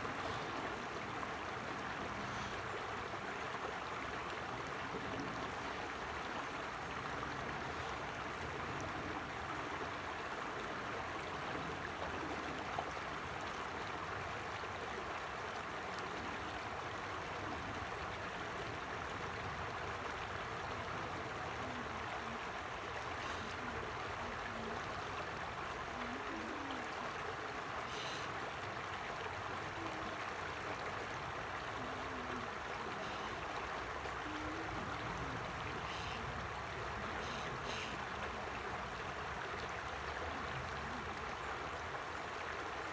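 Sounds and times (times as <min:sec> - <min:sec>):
creek flowing with gurgles: 0:00.0 - 0:42.9.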